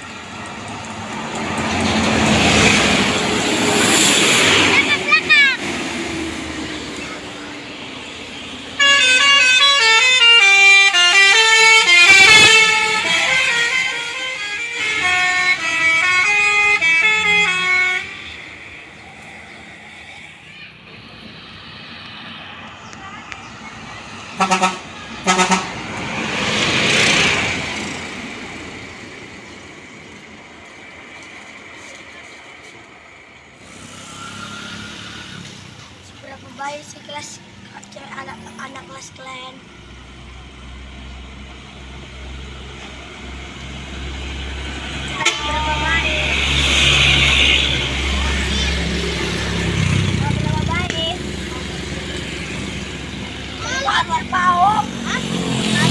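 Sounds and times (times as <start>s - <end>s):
vehicle passing: 0.0s - 55.9s
bus multi-tone horn tune: 8.7s - 18.6s, 24.3s - 27.4s, 44.8s - 50.7s.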